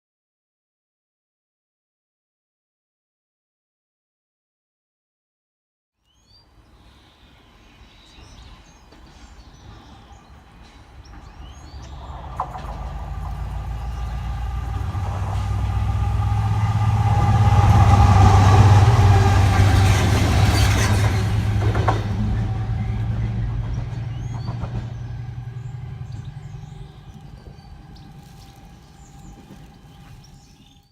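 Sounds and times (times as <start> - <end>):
birds chirping faintly: 6.0 - 15.1, 22.5 - 30.9
diesel locomotive engines droning: 6.6 - 30.9
wheels clicking on rails: 8.4 - 30.9.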